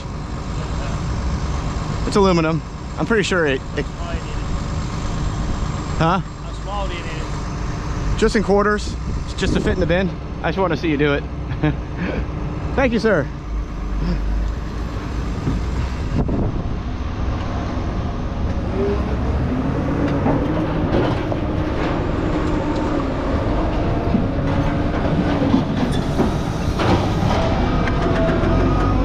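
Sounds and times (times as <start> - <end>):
diesel engine rumble: 0.0 - 29.0
metal and hydraulics squealing: 0.6 - 11.2, 18.7 - 29.0.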